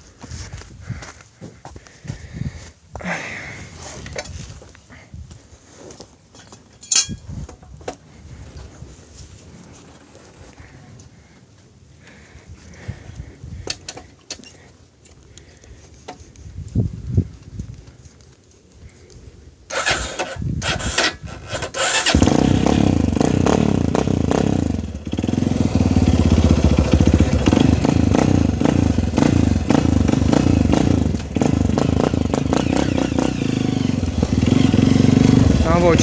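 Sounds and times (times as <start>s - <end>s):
motorcycle engine starting: 19.7s - 36.0s.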